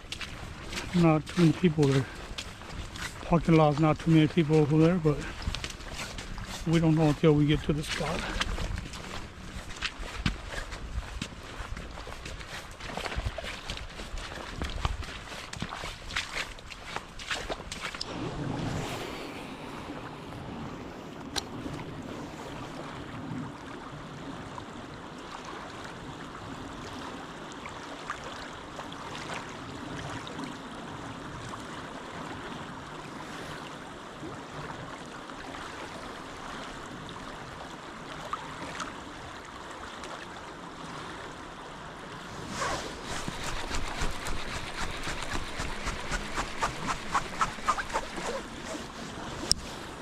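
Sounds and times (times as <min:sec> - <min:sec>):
river water rushing: 0:34.9 - 0:50.0
quick regular clicks and rustles: 0:43.0 - 0:48.9.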